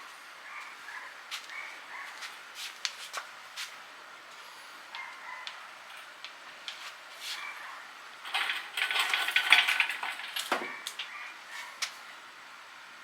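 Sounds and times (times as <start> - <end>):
metal tools clinking and clattering: 8.2 - 11.2.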